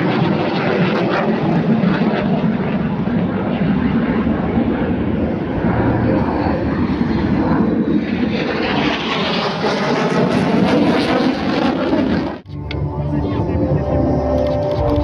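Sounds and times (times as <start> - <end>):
military aircraft flying past: 0.0 - 15.0.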